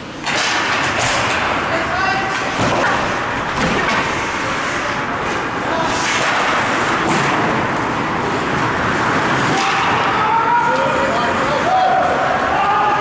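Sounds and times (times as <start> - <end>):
ice hockey game din: 0.0 - 13.0
knocks of sticks and puck: 0.2 - 4.2, 5.9 - 7.7, 9.4 - 11.0.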